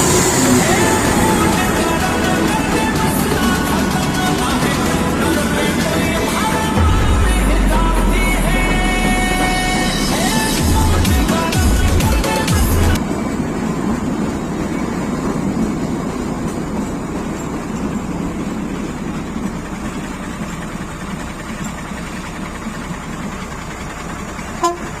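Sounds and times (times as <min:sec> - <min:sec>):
music: 0:00.0 - 0:13.0
train rumbling: 0:00.0 - 0:25.0.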